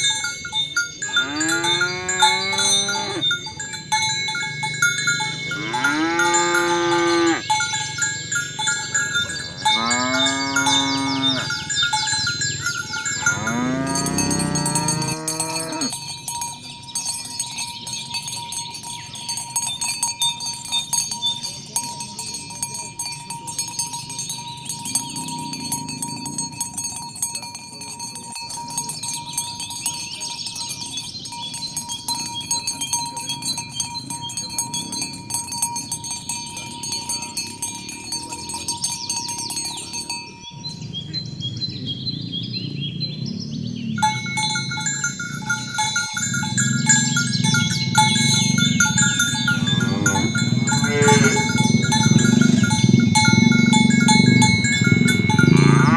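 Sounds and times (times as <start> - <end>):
cattle bells jingling: 0.0 - 55.9
cow mooing: 1.1 - 3.3, 5.5 - 7.5, 9.2 - 11.7, 13.2 - 15.9, 46.5 - 52.8, 53.5 - 55.9.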